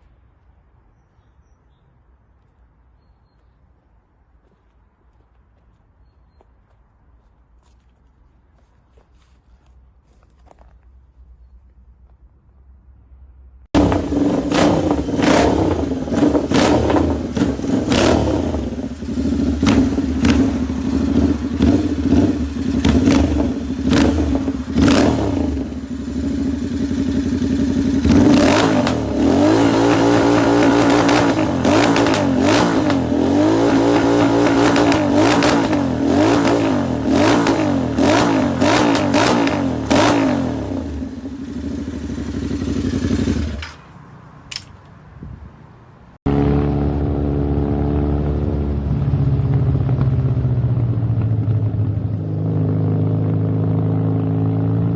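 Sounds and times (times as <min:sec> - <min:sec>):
motorcycle engine revving: 0:13.7 - 0:43.9, 0:46.3 - 0:54.9
motorcycle idling with pops: 0:41.4 - 0:43.9.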